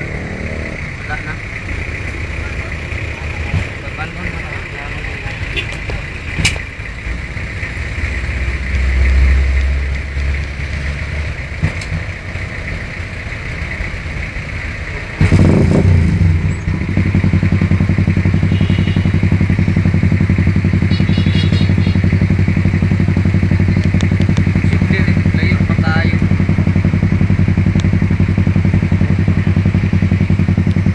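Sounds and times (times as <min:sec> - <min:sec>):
motorcycle engine running: 0:00.0 - 0:30.9
street traffic: 0:00.0 - 0:30.9.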